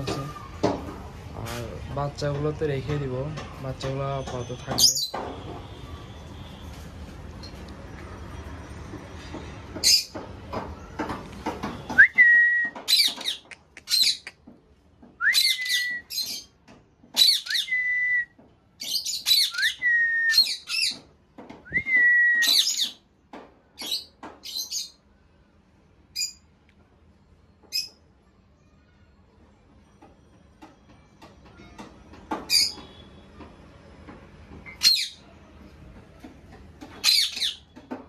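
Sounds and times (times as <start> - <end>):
parrots squawking and chattering: 12.8 - 14.6, 15.3 - 17.8, 18.8 - 21.1, 22.4 - 23.1, 31.7 - 32.9, 36.8 - 38.0.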